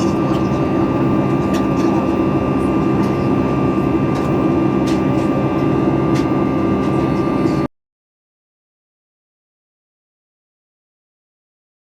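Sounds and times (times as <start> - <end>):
high whine: 0.0 - 7.7
jet engine drone in cabin: 0.0 - 7.7.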